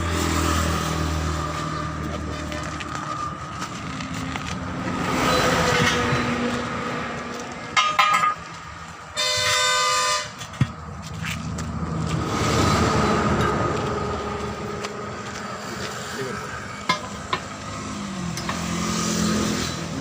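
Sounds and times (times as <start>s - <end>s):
traffic noise: 0.0s - 20.0s
vehicle horns tooting: 9.1s - 10.4s.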